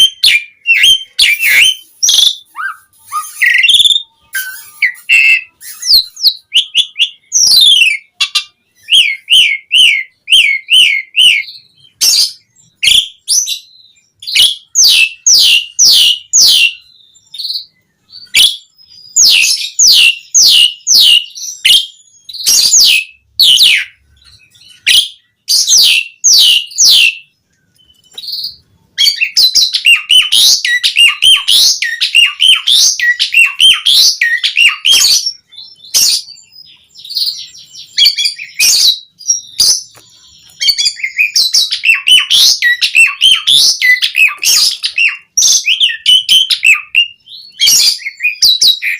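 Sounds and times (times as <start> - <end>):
starling singing whistled notes: 0.0 - 48.9.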